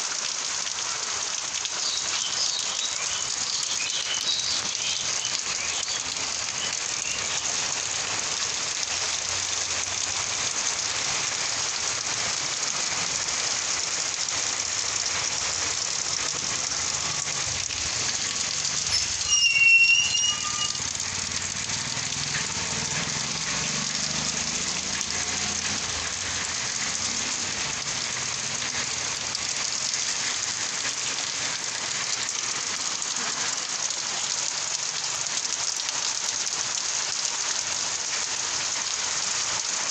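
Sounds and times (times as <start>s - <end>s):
rain pattering: 0.0s - 39.9s
brief high-pitched sound: 18.9s - 21.0s.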